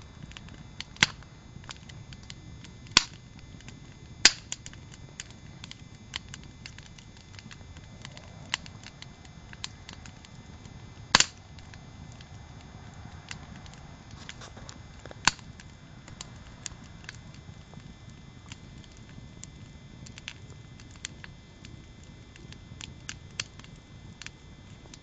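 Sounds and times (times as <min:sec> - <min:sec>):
campfire crackling and popping: 0:00.0 - 0:25.0
low burning hiss: 0:00.0 - 0:25.0.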